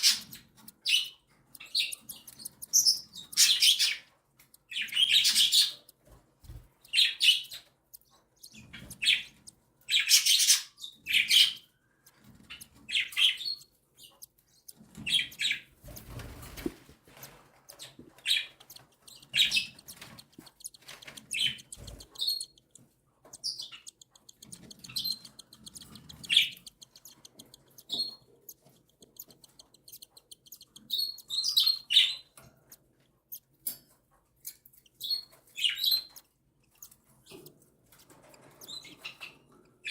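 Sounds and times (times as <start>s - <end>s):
cockatiel chicks raspy calls: 0.0s - 4.1s, 8.4s - 33.4s.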